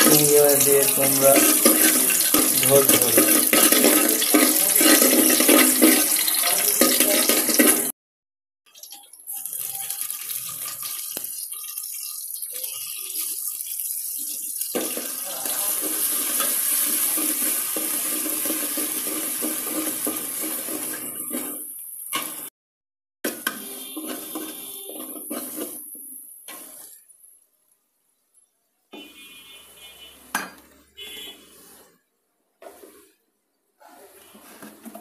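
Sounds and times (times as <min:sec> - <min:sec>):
food sizzling in hot oil: 0:00.0 - 0:07.9, 0:08.7 - 0:22.5, 0:23.3 - 0:27.3.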